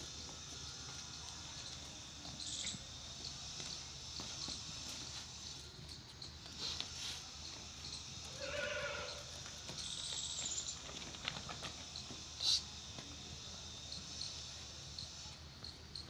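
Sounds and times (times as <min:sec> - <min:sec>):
insect chirring: 0:07.3 - 0:16.0.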